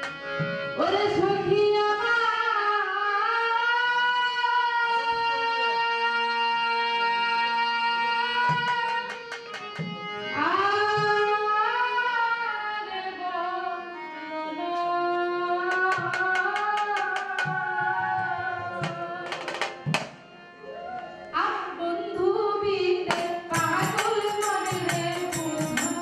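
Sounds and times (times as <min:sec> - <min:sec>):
person singing folk song: 0:21.4 - 0:26.0
hand drum strokes: 0:23.1 - 0:26.0.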